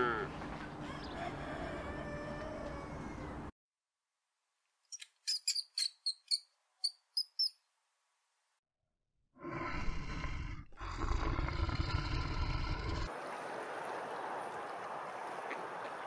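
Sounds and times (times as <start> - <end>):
vole squeaking: 4.9 - 7.6
bear growling: 9.4 - 13.1.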